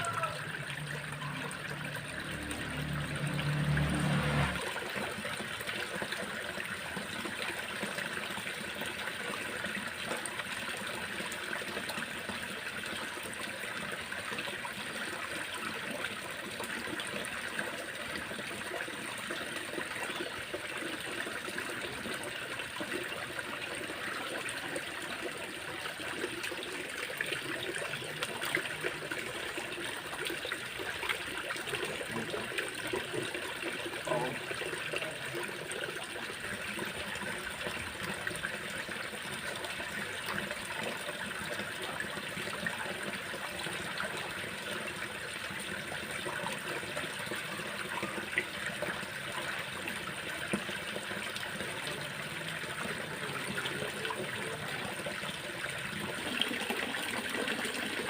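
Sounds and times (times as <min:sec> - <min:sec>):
small water splashes: 0:00.0 - 0:10.6
shallow water trickling: 0:00.0 - 0:58.0.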